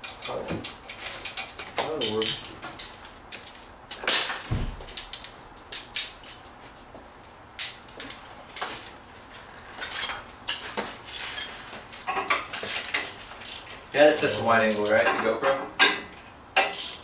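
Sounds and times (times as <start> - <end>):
metal tools clinking on metal: 0.0 - 3.0, 4.9 - 6.4, 9.7 - 17.0
low thump: 4.5 - 4.9.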